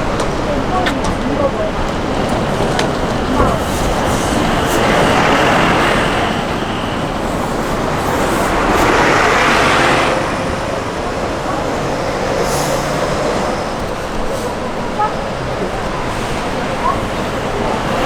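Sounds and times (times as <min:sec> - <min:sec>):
vehicle road noise rushing: 0:00.0 - 0:18.0.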